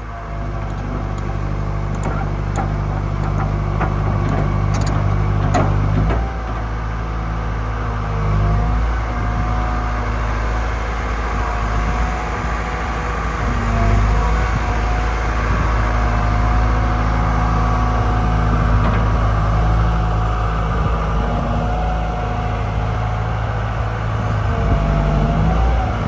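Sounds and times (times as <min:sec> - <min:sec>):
excavator engine running: 0:00.0 - 0:26.0
clicks and knocks: 0:00.5 - 0:06.7.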